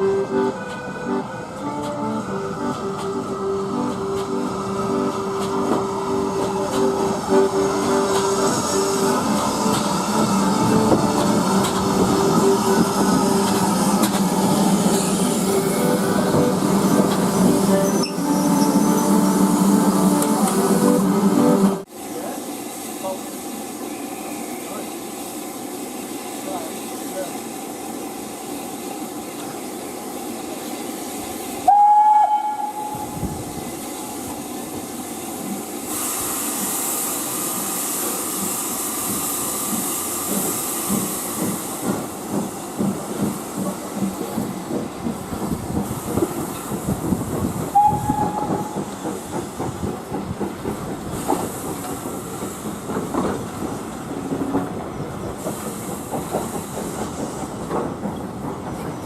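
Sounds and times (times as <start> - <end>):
steam hissing: 0.0 - 59.0
steam locomotive whistle: 17.4 - 21.6, 31.6 - 33.6, 47.7 - 48.9
locomotive exhaust beats: 39.0 - 58.9.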